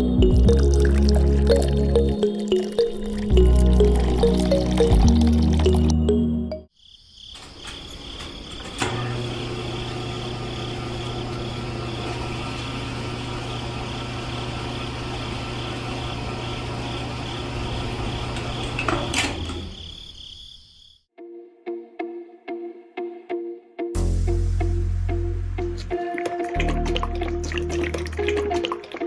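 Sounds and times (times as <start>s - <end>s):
small electric motor humming: 9.1s - 17.8s.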